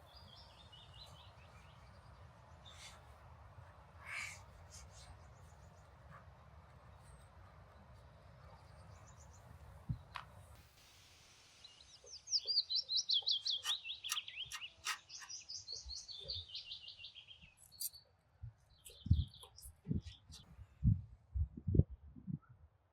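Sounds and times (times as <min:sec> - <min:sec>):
bird chirping: 0:11.6 - 0:20.5.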